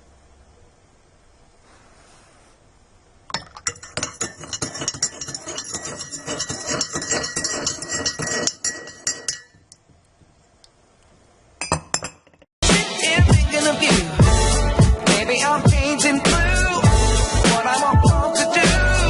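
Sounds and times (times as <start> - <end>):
hard objects clinking and clattering: 3.3 - 9.9.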